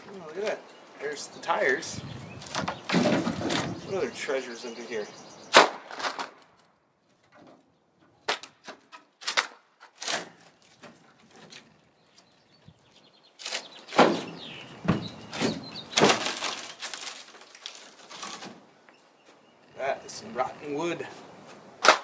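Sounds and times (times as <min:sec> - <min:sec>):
wood splintering and scraping: 0:00.0 - 0:22.0
wooden boards cracking and knocking: 0:02.4 - 0:04.0, 0:05.5 - 0:11.8, 0:13.4 - 0:18.7, 0:21.5 - 0:22.0.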